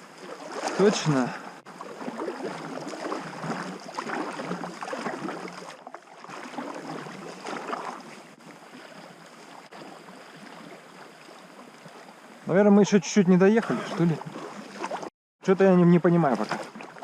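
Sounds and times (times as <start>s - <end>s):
river water splashing and lapping: 0.0s - 17.0s.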